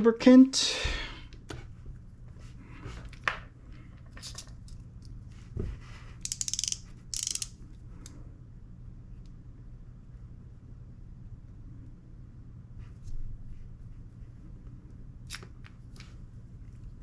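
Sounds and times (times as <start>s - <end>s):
faint low hum: 0.0s - 17.0s
small objects clicking: 6.2s - 7.6s.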